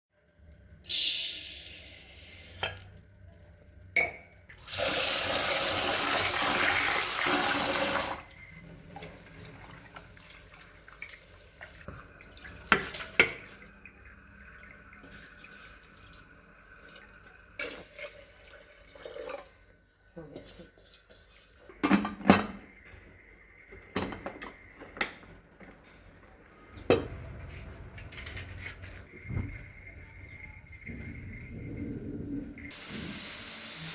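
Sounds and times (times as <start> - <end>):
kitchen tap running: 4.5 - 8.3, 8.9 - 19.8, 32.6 - 33.9.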